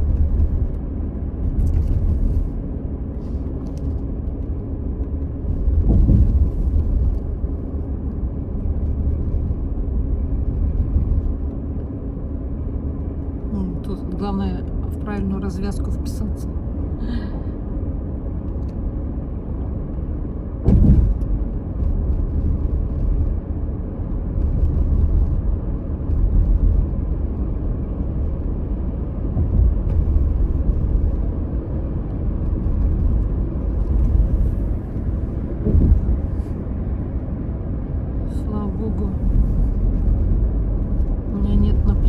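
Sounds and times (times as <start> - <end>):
tyre and engine rumble: 0.0 - 42.0
thump: 5.7 - 6.9, 20.6 - 21.3, 35.6 - 36.2.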